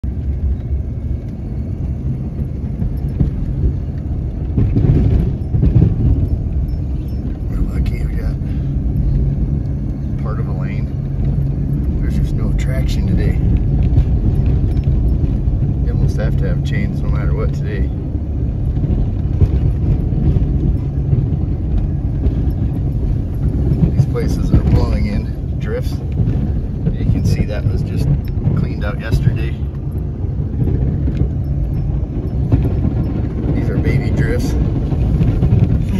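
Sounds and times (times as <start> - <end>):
pickup truck engine and tyres: 0.0 - 35.9.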